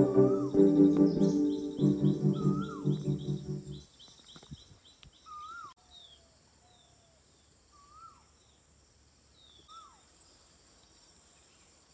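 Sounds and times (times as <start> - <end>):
bird calls and chirps: 0.0 - 7.1.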